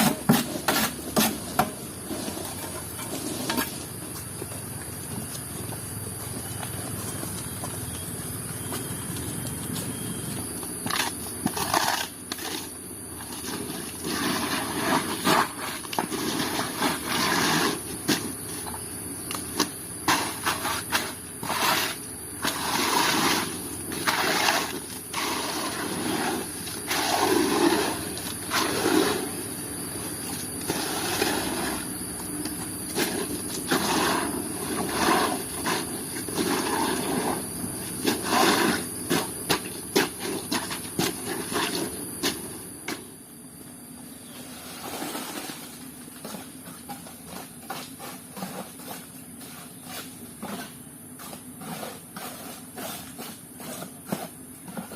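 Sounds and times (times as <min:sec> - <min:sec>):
shovel scraping wet concrete: 0:00.0 - 0:03.9, 0:10.8 - 0:18.6, 0:19.3 - 0:29.5, 0:30.2 - 0:32.0, 0:32.9 - 0:42.5, 0:44.4 - 0:54.9.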